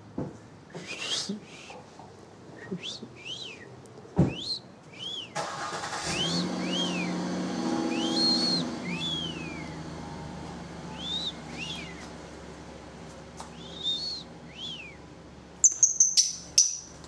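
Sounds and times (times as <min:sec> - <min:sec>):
parakeet chirping: 0:15.6 - 0:17.0.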